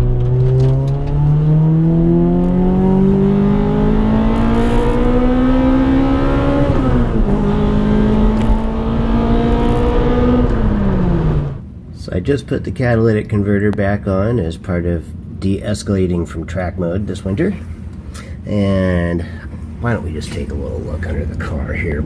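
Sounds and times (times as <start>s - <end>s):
car exhaust accelerating: 0.0s - 11.6s.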